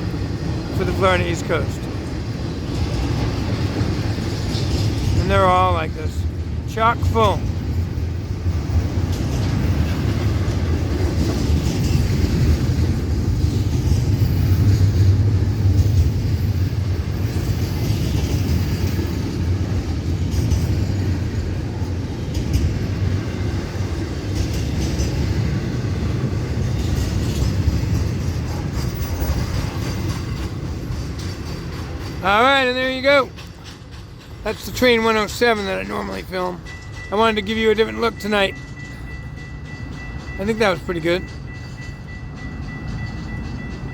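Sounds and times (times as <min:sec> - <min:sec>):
freight cars rattling: 0:00.0 - 0:43.9
freight train wheels rumbling on rail: 0:00.0 - 0:43.9.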